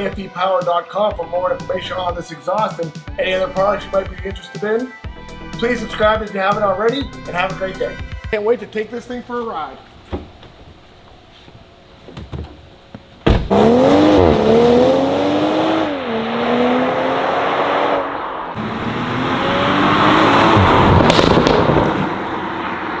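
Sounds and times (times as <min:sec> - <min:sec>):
car engine accelerating: 0:13.4 - 0:23.0.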